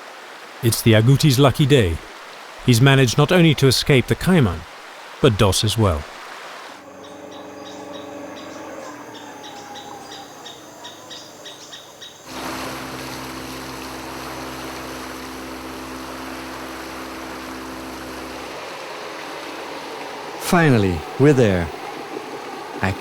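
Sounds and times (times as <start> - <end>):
rushing water: 0.0 - 23.0
boat motor running: 6.8 - 10.7, 12.3 - 23.0
whistled call: 6.8 - 12.1
high chirps: 6.8 - 12.2.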